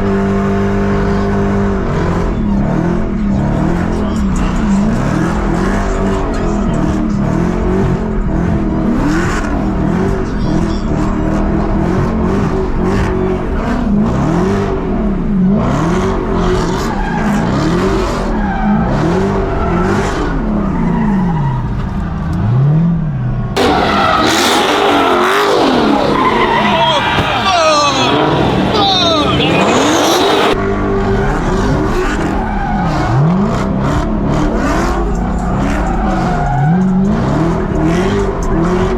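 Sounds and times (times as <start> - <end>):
car engine revving: 0.0 - 22.8, 23.6 - 38.9
tyre squeal and skidding: 16.6 - 21.9, 23.6 - 30.6, 32.0 - 33.4, 35.2 - 37.5.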